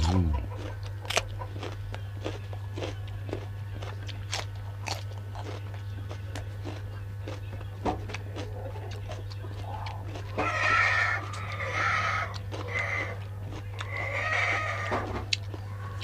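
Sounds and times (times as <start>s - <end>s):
person chewing crunchy food: 0.0s - 16.0s.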